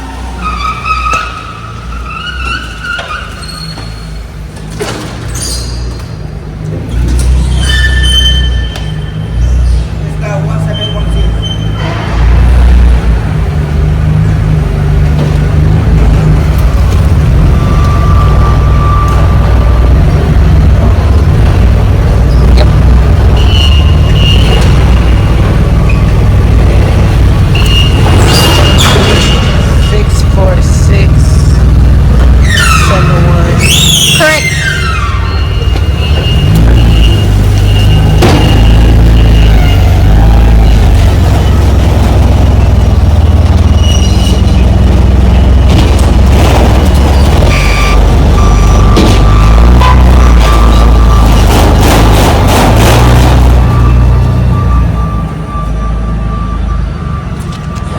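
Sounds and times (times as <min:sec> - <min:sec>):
road and wind noise: 0:00.0 - 0:57.9
truck diesel engine drone: 0:00.0 - 0:57.9.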